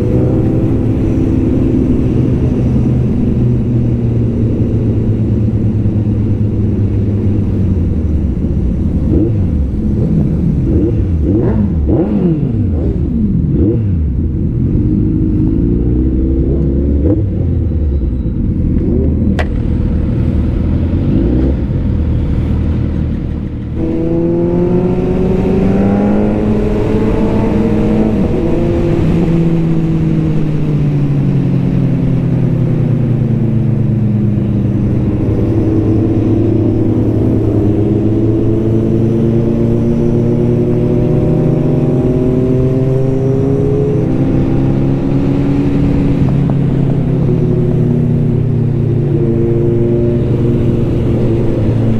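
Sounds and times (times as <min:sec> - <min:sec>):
motorcycle engines revving: 0:00.0 - 0:51.9.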